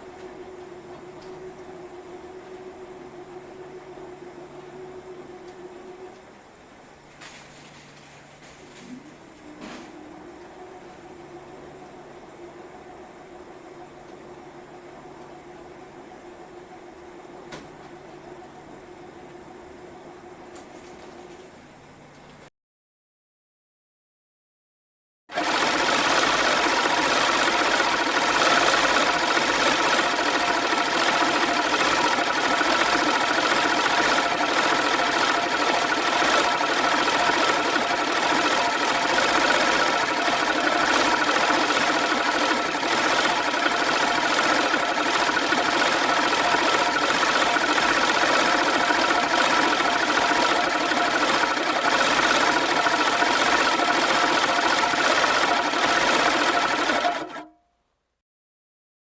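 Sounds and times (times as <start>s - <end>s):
machine whirring: 25.3s - 57.5s.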